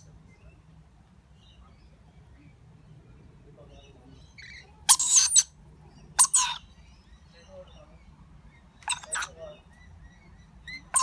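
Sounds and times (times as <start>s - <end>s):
parrots screeching: 4.4s - 5.6s, 6.2s - 6.8s, 8.8s - 9.4s, 10.6s - 11.0s.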